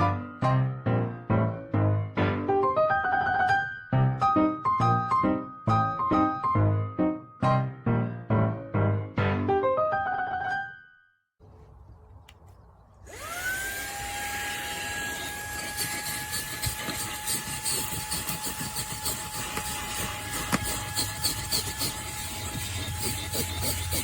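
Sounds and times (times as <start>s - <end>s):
handheld vacuum motor whine: 13.0s - 24.0s.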